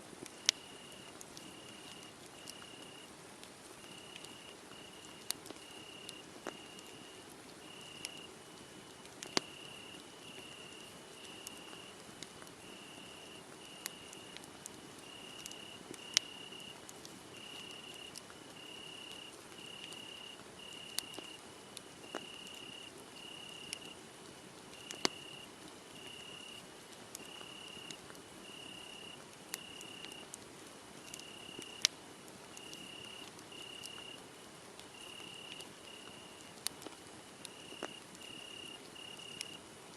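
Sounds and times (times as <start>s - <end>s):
wood fire crackling: 0.1s - 39.9s
cricket chirping: 0.4s - 3.0s, 3.8s - 8.3s, 9.3s - 11.9s, 12.6s - 14.4s, 15.0s - 16.7s, 17.4s - 21.4s, 22.0s - 24.0s, 24.8s - 25.4s, 26.0s - 26.6s, 27.2s - 30.2s, 31.0s - 31.9s, 32.5s - 34.2s, 34.9s - 36.5s, 37.5s - 39.6s.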